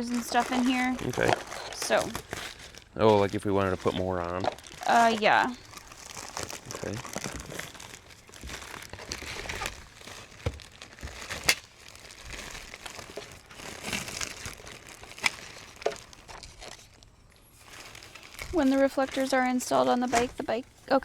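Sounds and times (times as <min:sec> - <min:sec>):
packaging crinkling: 0:00.0 - 0:21.0.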